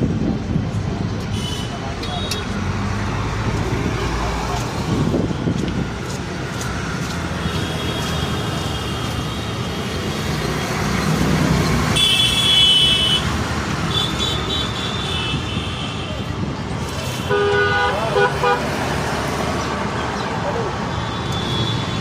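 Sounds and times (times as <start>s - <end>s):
road traffic rumble: 0.0s - 22.0s
vehicle horn tooting: 12.0s - 13.3s, 17.2s - 18.7s.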